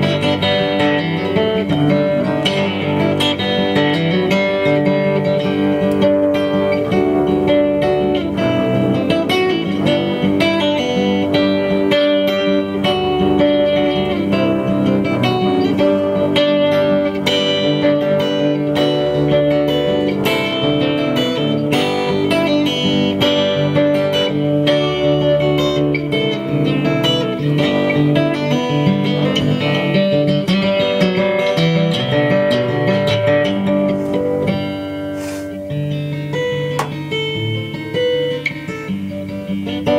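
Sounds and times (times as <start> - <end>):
live americana band music: 0.0 - 39.9
picked guitar: 0.0 - 39.9.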